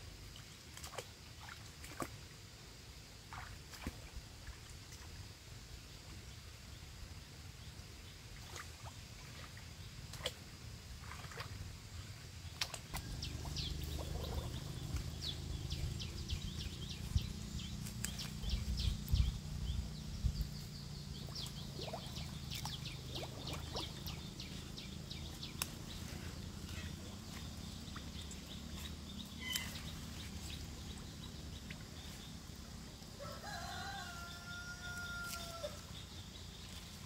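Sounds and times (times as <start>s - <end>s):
birds chirping: 12.9s - 37.0s
low rumble: 13.0s - 32.6s.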